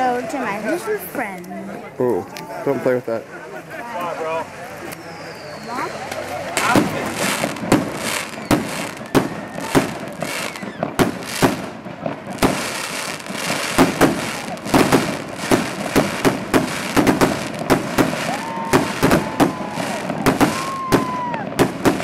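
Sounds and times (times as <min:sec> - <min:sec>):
fireworks bangs: 0:05.3 - 0:22.0.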